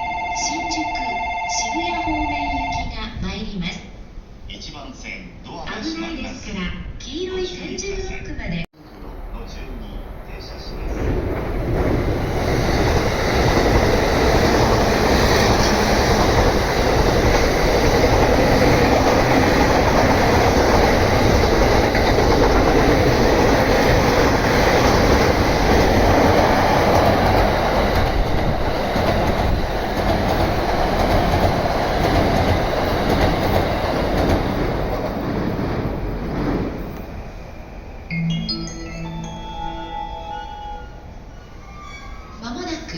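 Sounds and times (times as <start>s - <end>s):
train wheels clattering over rails: 10.6s - 37.1s.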